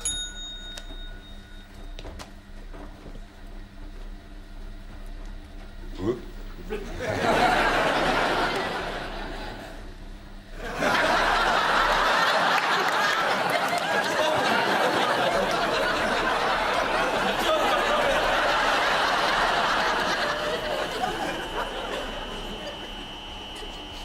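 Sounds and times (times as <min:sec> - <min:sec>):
studio audience laughing: 0:06.6 - 0:09.9, 0:10.6 - 0:23.9.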